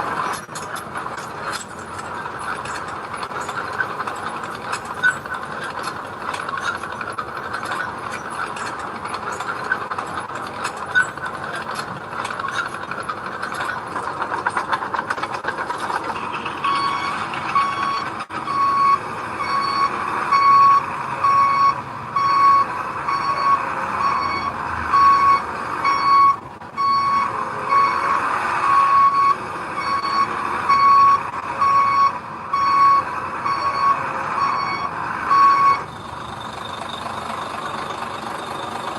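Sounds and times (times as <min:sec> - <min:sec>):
construction machinery clattering: 0:00.0 - 0:38.9
reversing alarm beeping: 0:16.6 - 0:28.1, 0:28.7 - 0:38.9.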